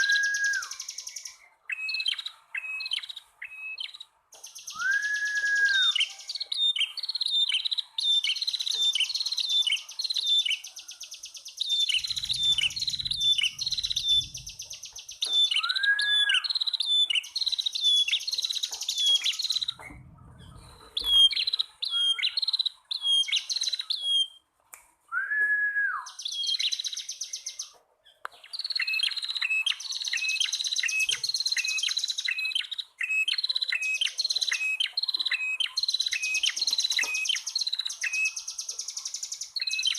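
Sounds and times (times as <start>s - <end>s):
birds chirping over buzzy trill: 11.8s - 15.2s.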